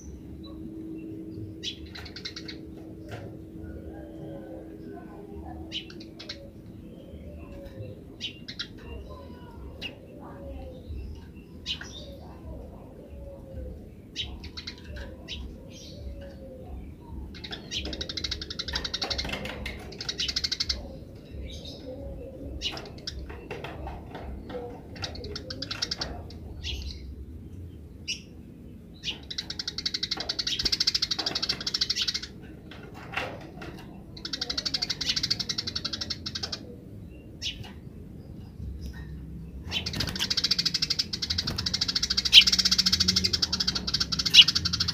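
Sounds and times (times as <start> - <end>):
sparrows chirping: 0.0 - 44.9
steady low hum: 0.0 - 44.9.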